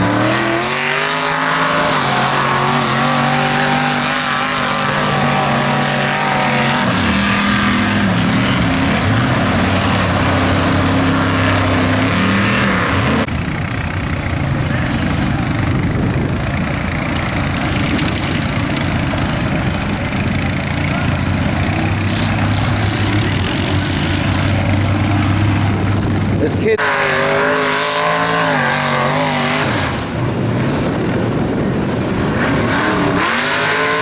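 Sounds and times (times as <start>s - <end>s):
truck engine revving: 0.0s - 34.0s
rough low running noise: 1.8s - 26.8s.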